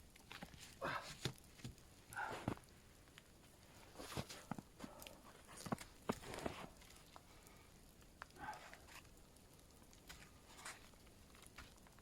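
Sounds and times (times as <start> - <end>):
sticks cracking and knocking: 0.2 - 1.8.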